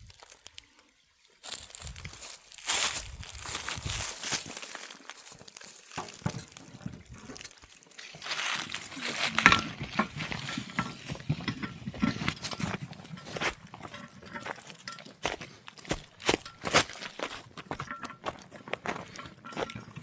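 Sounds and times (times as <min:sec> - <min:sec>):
crunching and rustling handling: 0:01.4 - 0:20.0
person's voice: 0:08.5 - 0:09.8.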